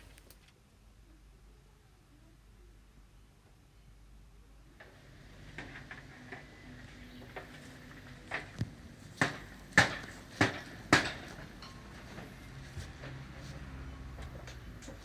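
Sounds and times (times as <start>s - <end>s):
hammer strikes: 9.2s - 11.8s.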